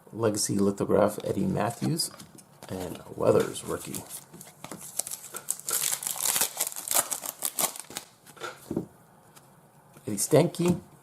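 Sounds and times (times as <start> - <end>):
foil wrapper crinkling: 3.8 - 8.2.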